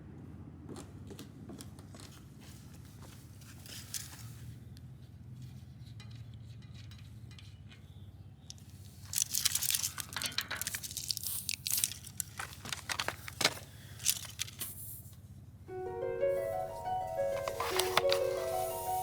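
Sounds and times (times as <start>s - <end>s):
paper crinkling and tearing: 8.8s - 14.8s, 17.2s - 19.0s.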